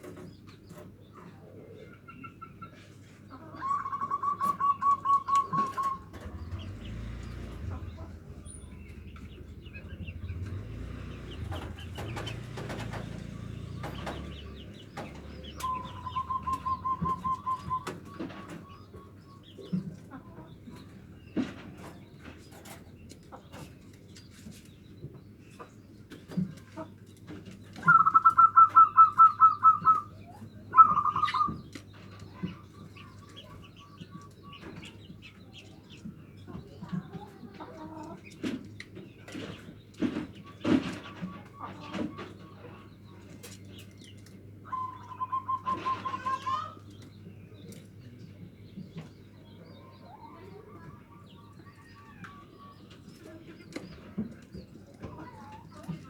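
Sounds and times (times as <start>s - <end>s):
higher bird chirps: 3.6s - 12.2s, 13.4s - 19.8s, 27.8s - 34.8s, 44.6s - 47.0s
dove cooing: 3.6s - 13.1s, 15.4s - 18.8s, 27.8s - 31.8s, 44.7s - 46.8s.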